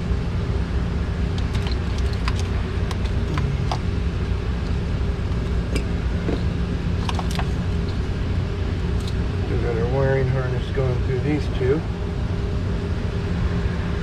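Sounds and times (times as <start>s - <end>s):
low machinery hum: 0.0s - 14.0s
tools clicking and tapping: 1.4s - 3.8s.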